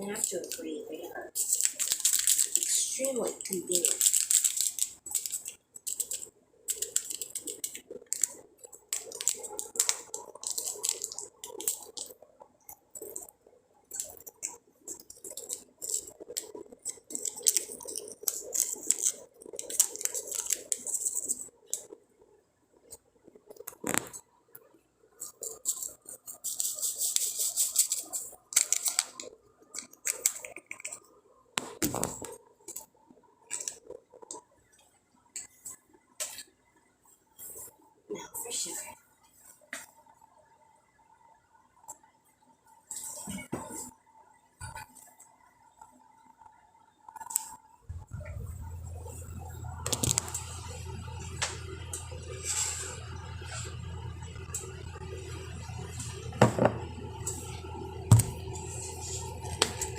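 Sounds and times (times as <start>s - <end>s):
coffee packet crinkling: 0.1s - 12.2s, 13.9s - 22.0s, 25.2s - 31.0s.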